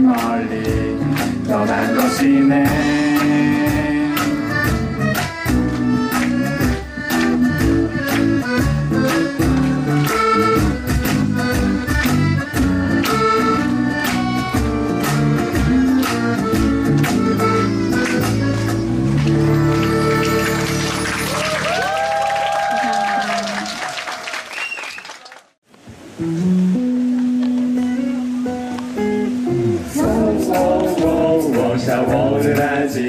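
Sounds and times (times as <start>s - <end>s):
steady drum beat: 0.0s - 19.4s, 30.0s - 33.0s
live band playing: 0.0s - 23.9s, 26.1s - 33.0s.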